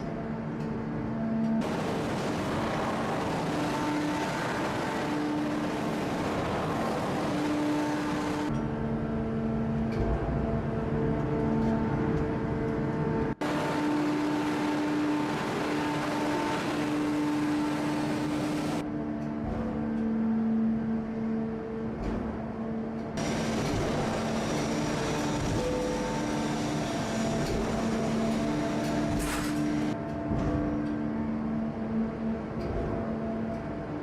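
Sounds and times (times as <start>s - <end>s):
hydraulic press machine drone: 0.0s - 34.0s
loud hiss: 1.6s - 8.5s.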